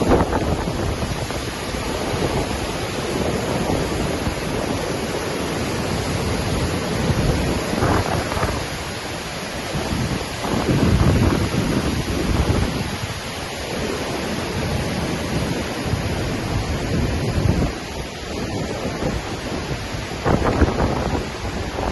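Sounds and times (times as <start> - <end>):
waterfall rushing: 0.0 - 21.9
wind buffeting microphone: 0.0 - 21.9.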